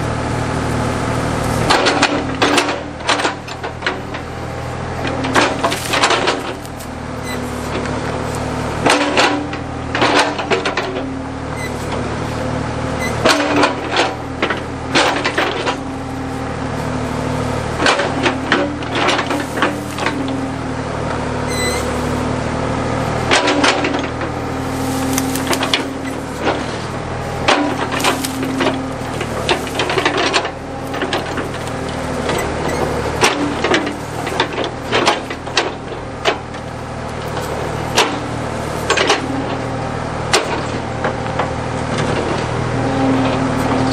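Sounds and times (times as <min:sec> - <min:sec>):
backhoe engine running: 0:00.0 - 0:43.9
wood cracking: 0:05.0 - 0:11.1, 0:13.2 - 0:21.2, 0:23.2 - 0:41.4.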